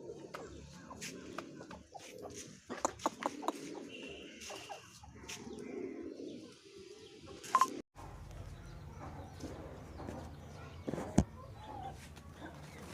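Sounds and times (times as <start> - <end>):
chickens making soft calls: 0.0 - 7.5.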